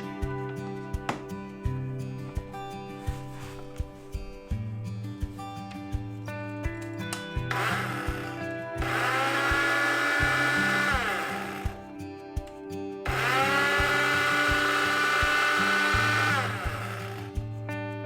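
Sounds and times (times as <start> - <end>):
background music with bass line: 0.0 - 18.0
small electric motor whining: 7.5 - 11.9, 13.1 - 17.4.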